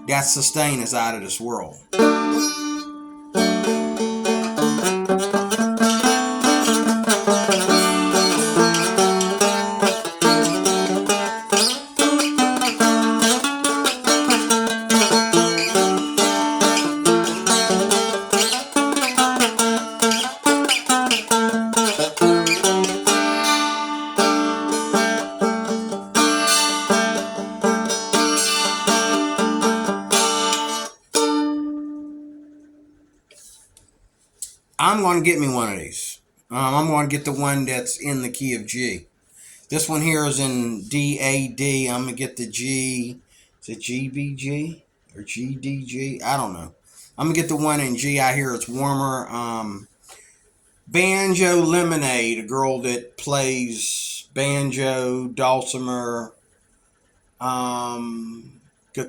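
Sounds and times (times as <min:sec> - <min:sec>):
open strings ringing: 0:00.0 - 0:33.5
plucked dulcimer notes: 0:01.9 - 0:32.8.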